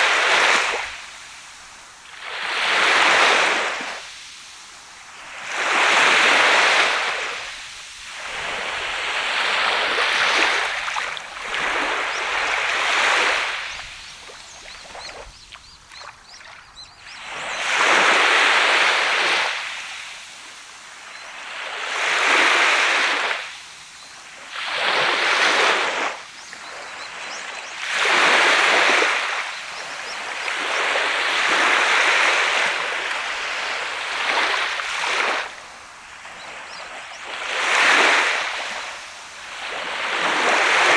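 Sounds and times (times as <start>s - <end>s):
surf breaking on a sand beach: 5.3s - 20.3s.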